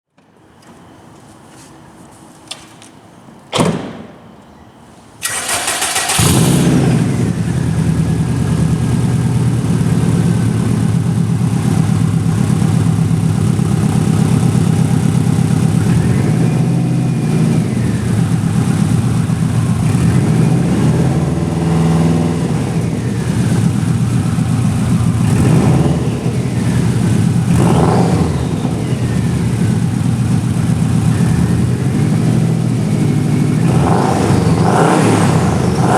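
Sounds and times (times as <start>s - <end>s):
car engine starting and idling: 5.2s - 35.9s
engine revving: 5.2s - 35.9s.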